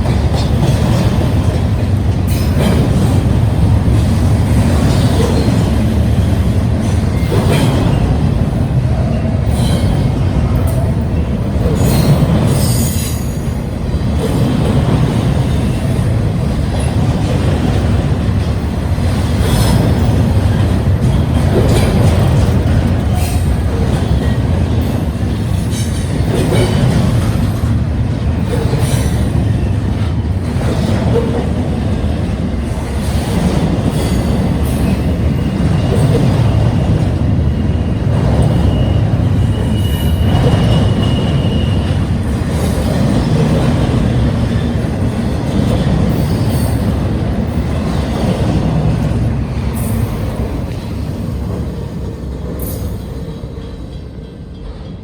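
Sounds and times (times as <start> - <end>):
train wheels rumbling on rail: 0.0 - 55.0
high wheel squeal: 38.5 - 42.2.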